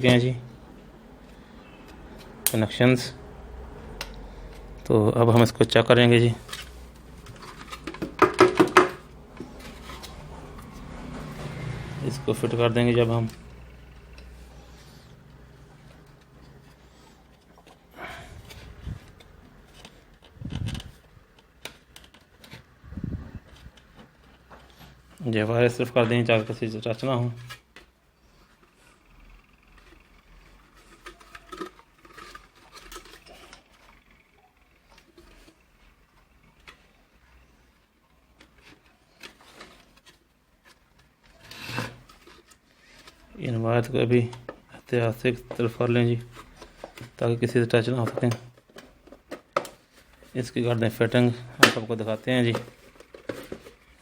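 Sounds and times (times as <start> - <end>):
plastic parts clicking and knocking: 6.4 - 11.4, 15.2 - 22.8, 27.4 - 54.0.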